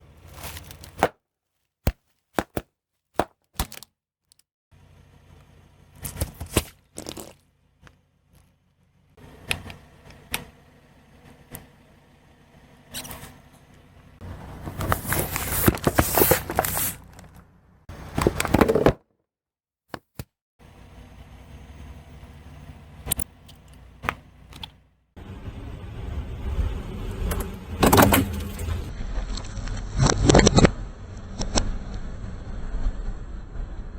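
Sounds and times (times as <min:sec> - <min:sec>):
sharp cracks and crunches: 0:00.1 - 0:04.5, 0:06.0 - 0:08.6, 0:14.4 - 0:18.9, 0:27.8 - 0:31.7
car engine rumble: 0:04.7 - 0:18.6, 0:20.6 - 0:30.0
low steady hum: 0:20.6 - 0:29.5
car hitting objects: 0:26.6 - 0:28.9.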